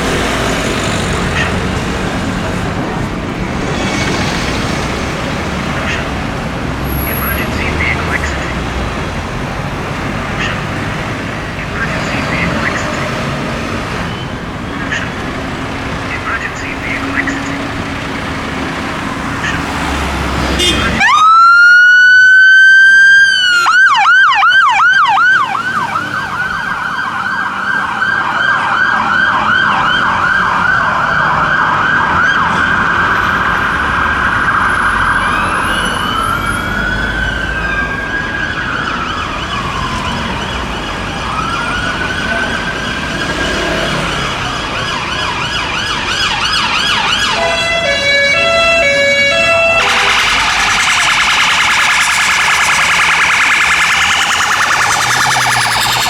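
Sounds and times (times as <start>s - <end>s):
siren wailing: 0.0s - 56.0s
siren yelping: 0.0s - 56.0s
warbling siren tone: 10.3s - 56.0s.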